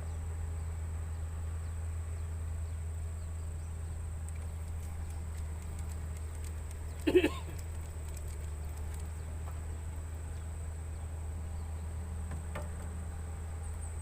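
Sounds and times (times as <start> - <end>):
low steady hum: 0.0 - 14.0
insects droning: 2.6 - 14.0
faint knock: 12.3 - 12.9.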